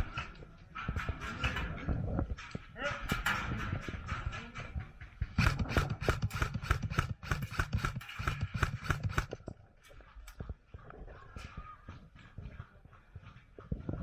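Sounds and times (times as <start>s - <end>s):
quick footsteps: 3.4s - 14.0s.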